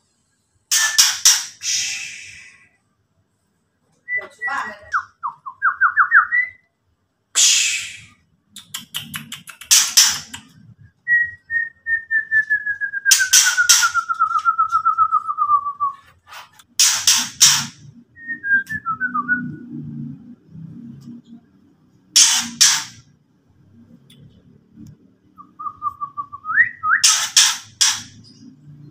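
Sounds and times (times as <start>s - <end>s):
bird whistled trills: 0.7s - 2.7s, 13.0s - 15.6s.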